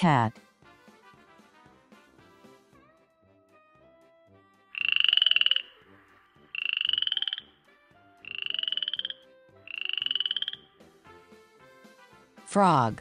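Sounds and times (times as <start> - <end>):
faint background music: 0.0 - 13.0
frog croaking trill: 4.8 - 7.6, 8.2 - 10.7.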